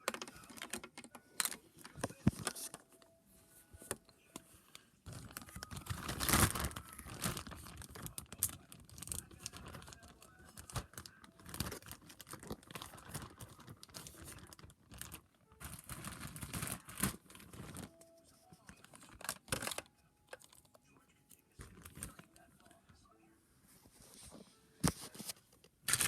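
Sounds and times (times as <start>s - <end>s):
rustling and crinkling: 0.0s - 26.0s.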